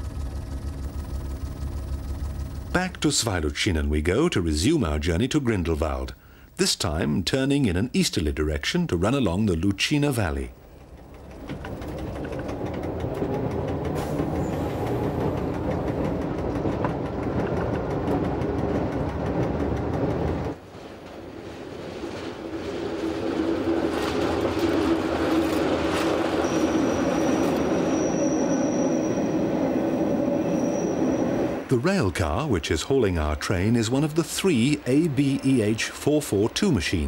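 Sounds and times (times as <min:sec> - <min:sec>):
electric train running: 0:00.0 - 0:06.0, 0:10.3 - 0:37.0
wheels clicking over rail joints: 0:10.6 - 0:37.0.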